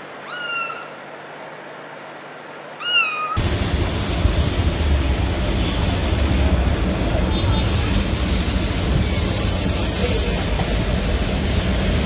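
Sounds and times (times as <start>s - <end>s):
cat meowing: 2.8s - 3.4s
steady low rumbling noise: 3.4s - 9.4s.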